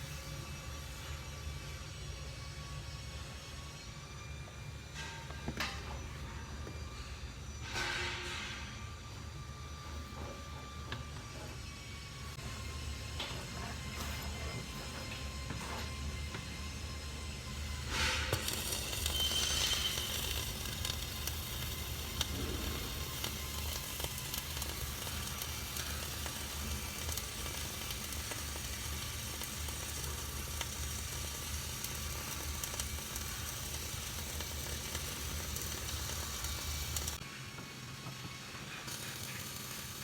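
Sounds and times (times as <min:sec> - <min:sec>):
welding arc sizzling: 0:11.7 - 0:37.2, 0:38.0 - 0:40.0
low hum: 0:20.0 - 0:25.4.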